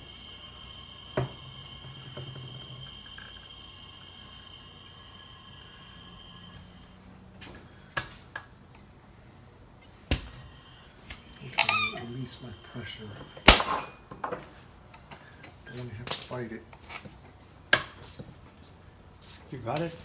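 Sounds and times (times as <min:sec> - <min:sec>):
faint high whine: 0:10.3 - 0:14.0.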